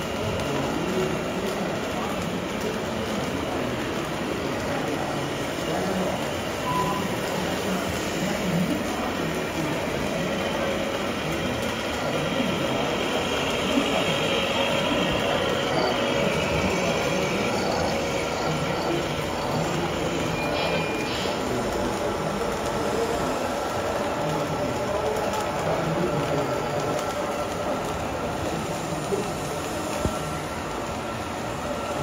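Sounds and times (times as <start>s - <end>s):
faint high whine: 6.6s - 7.4s.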